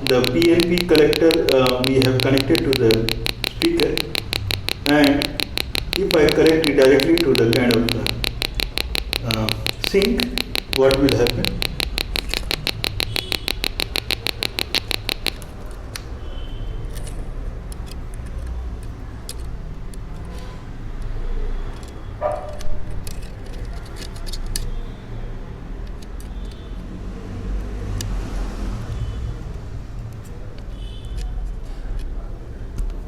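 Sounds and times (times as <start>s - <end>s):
small clicks: 0.0s - 15.5s
speaker ticking rapidly: 0.0s - 15.6s.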